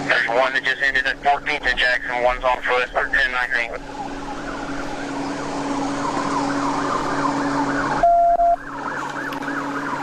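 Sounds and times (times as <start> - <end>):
police siren fast yelp: 3.8 - 10.0
loud steady beep: 8.0 - 8.6.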